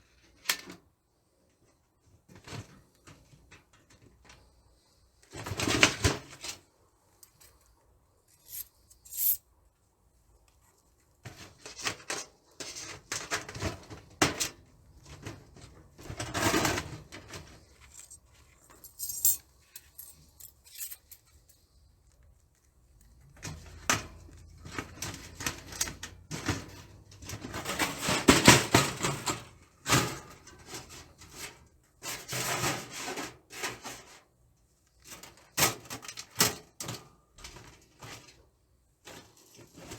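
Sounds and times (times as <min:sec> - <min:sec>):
thin metal panels clattering: 0:08.4 - 0:09.4, 0:18.8 - 0:21.2.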